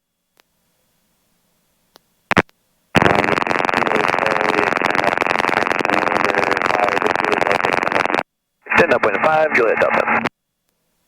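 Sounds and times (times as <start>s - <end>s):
helicopter engine and rotor over radio: 8.7s - 10.2s.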